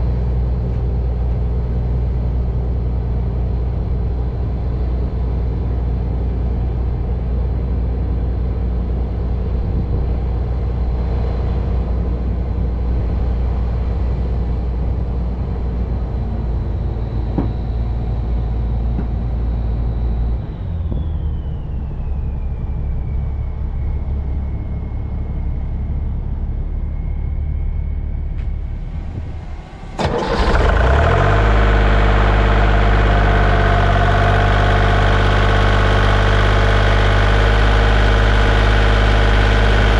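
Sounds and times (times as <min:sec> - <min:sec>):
heavy machine engine running: 0:11.5 - 0:39.9
high whine gliding down: 0:14.4 - 0:39.9.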